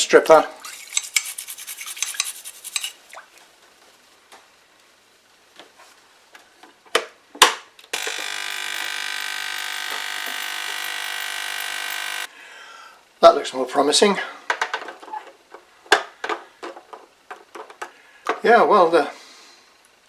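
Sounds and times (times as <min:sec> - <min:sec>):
electric device buzzing: 0:07.9 - 0:12.3.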